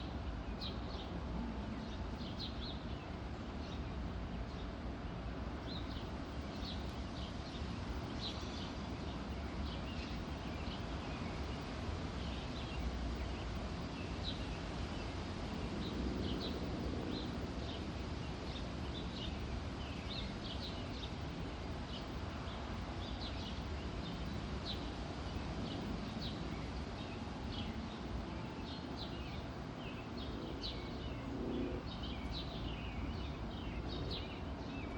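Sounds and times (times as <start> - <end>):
small birds chirping: 28.5 - 34.9.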